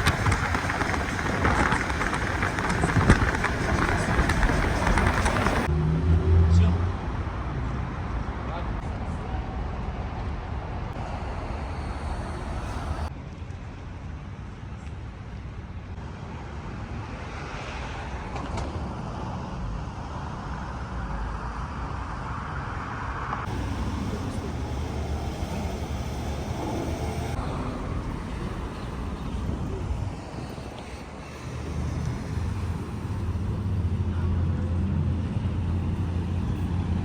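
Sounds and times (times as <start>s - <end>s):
moving vehicle rumble: 0.0s - 14.0s, 23.4s - 37.0s.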